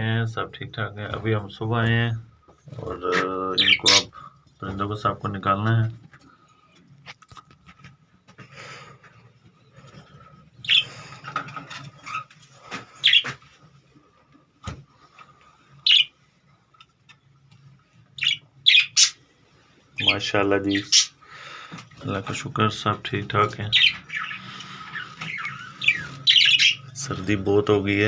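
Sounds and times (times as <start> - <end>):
budgerigars chirping: 3.5 - 4.1, 10.6 - 11.4, 13.0 - 13.3, 15.8 - 16.1, 18.2 - 19.2, 20.0 - 21.2, 23.6 - 27.3.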